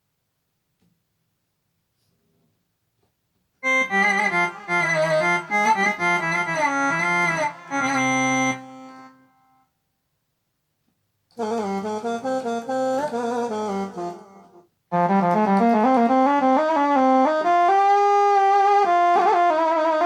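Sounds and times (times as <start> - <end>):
keyboard melody with bending pitch: 3.6 - 9.3, 11.4 - 20.0.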